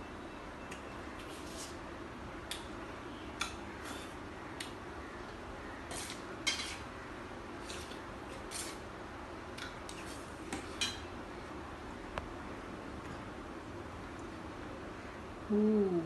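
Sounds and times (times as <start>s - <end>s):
utensils clinking and scraping on plate: 5.9s - 6.9s.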